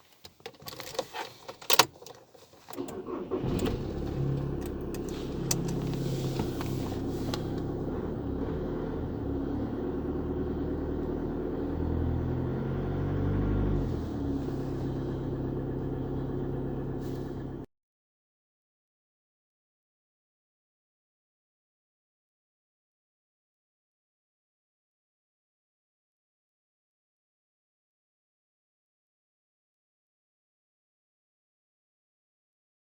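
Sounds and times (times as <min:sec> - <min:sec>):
car engine idling: 0:02.7 - 0:17.7.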